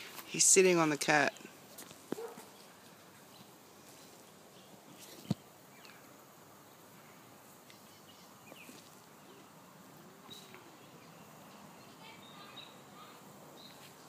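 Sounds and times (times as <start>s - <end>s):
faint background hiss: 0.0s - 14.0s.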